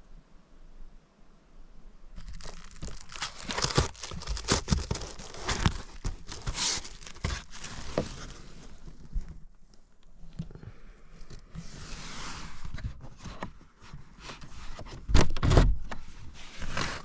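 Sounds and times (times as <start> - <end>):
plastic packaging crinkling: 2.2 - 9.3.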